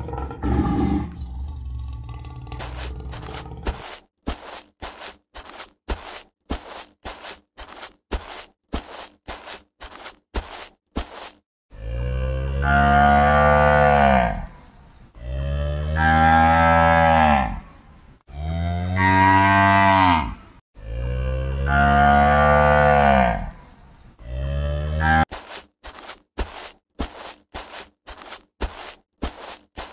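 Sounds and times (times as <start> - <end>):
cow mooing: 11.8 - 14.5, 18.3 - 23.5, 24.2 - 25.2.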